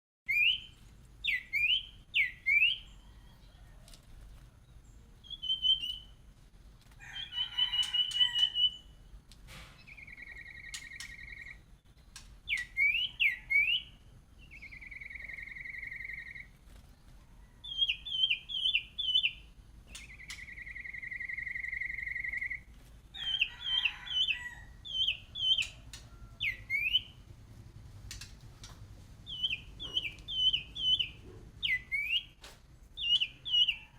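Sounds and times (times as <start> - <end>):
songbird whistling: 0.3 - 3.1, 5.2 - 6.2, 9.8 - 11.7, 12.4 - 16.5, 17.6 - 27.2, 29.2 - 32.4, 33.0 - 33.9.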